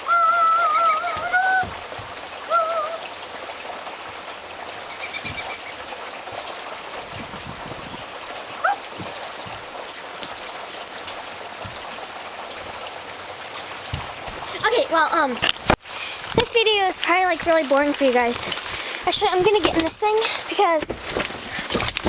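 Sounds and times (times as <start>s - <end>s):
rain falling: 0.0s - 22.0s
wavering whistle-like calls: 2.5s - 3.1s.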